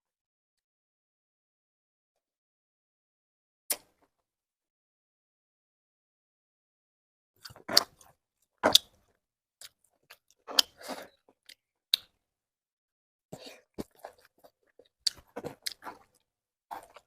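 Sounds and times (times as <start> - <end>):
food crunching while chewed: 7.4 - 9.0, 13.4 - 17.0.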